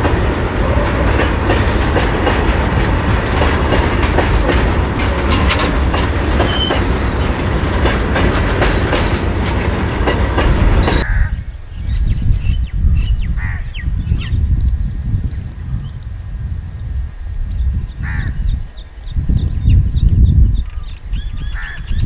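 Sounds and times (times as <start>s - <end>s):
train wheels clattering: 0.0s - 11.0s
train wheels squealing: 4.5s - 11.0s.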